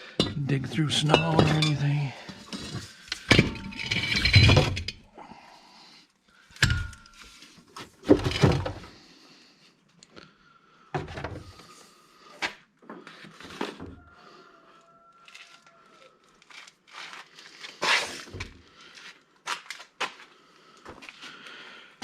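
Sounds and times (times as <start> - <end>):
knocks clunks and scrapes: 0.0 - 5.0, 6.7 - 8.9, 11.0 - 11.6.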